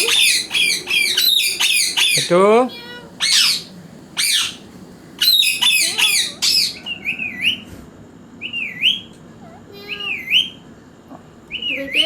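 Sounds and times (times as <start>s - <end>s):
parrot wavering whistled calls: 0.0s - 4.6s, 5.2s - 7.7s, 8.4s - 9.1s, 9.8s - 10.6s, 11.5s - 12.0s
parrot squawking: 0.0s - 7.6s, 8.4s - 10.6s.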